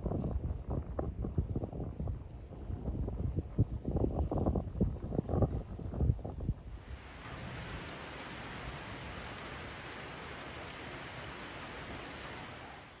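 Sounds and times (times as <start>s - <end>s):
steady hiss: 6.8s - 13.0s.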